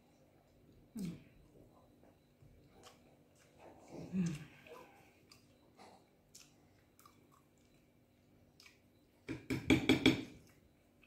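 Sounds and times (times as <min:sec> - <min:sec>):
person chewing: 0:02.6 - 0:09.0.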